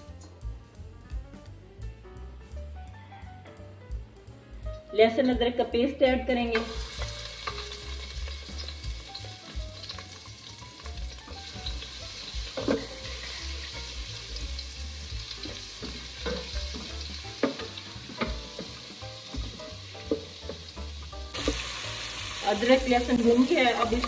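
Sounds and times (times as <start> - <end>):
paste sizzling in hot oil: 6.4 - 24.0.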